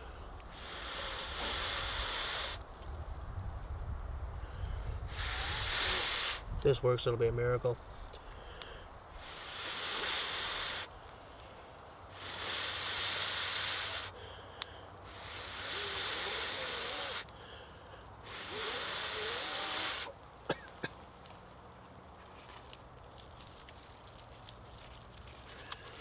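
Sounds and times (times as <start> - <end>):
person blowing on tinder: 0.0 - 2.6, 5.0 - 6.6, 9.1 - 10.9, 12.1 - 14.2, 15.0 - 17.3, 18.2 - 20.2.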